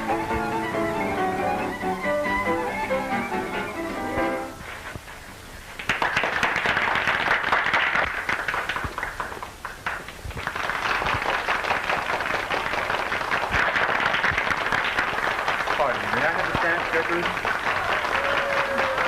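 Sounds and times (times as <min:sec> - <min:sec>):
crowd clapping and applauding: 0:05.8 - 0:19.0.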